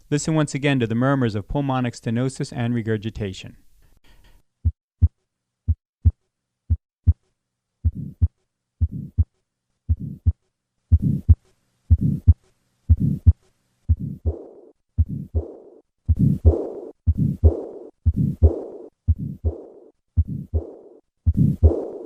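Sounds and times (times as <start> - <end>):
heart murmurs: 4.6 - 7.2, 7.8 - 9.3, 9.9 - 22.0
heartbeat lub-dub: 4.6 - 7.2, 7.8 - 9.3, 9.9 - 22.0.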